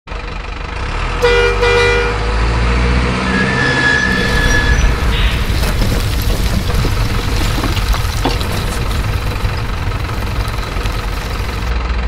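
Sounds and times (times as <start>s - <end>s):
truck horn toots: 1.2s - 5.4s
low engine rumble: 4.0s - 12.0s.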